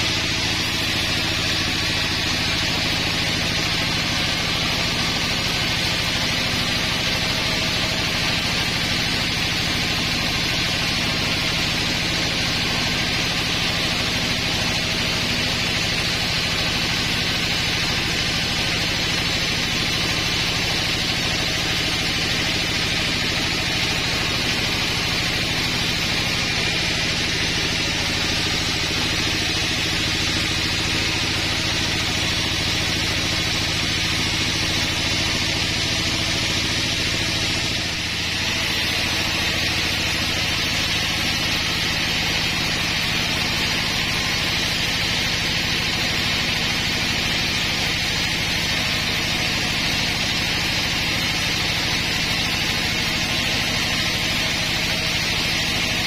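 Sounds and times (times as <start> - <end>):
engine humming: 0.0 - 9.2, 21.0 - 46.7
saw hissing through log: 0.0 - 56.0.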